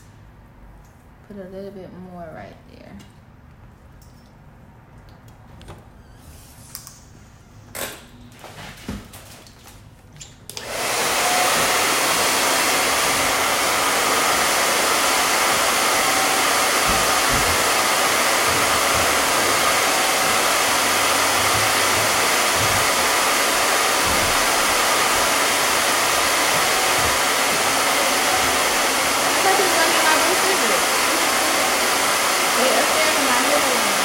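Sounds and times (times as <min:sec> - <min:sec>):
hair dryer blowing: 0:10.5 - 0:34.0.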